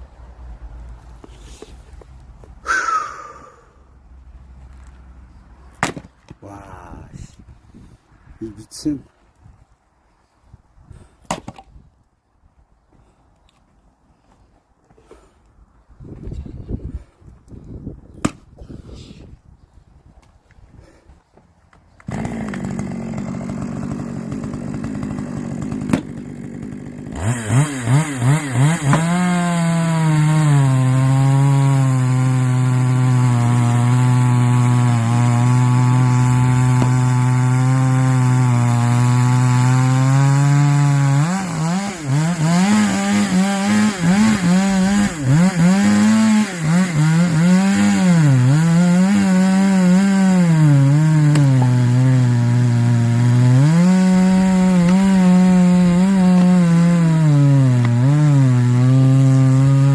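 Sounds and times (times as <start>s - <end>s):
chainsaw cutting through log: 21.9s - 59.9s.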